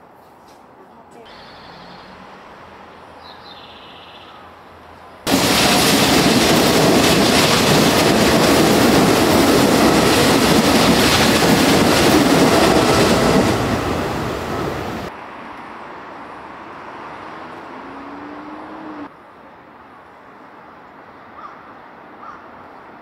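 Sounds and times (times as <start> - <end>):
train wheels on rails: 4.9 - 15.1.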